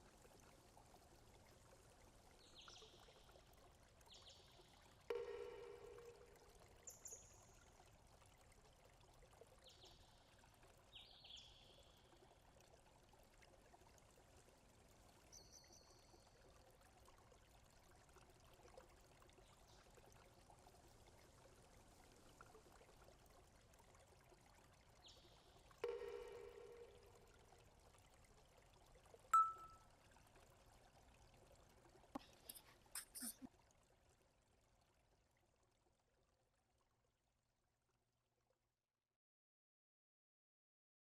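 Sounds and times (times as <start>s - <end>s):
ringing tone: 5.1s - 6.4s, 25.8s - 27.0s, 29.4s - 29.8s
short high chirps: 29.4s - 29.8s.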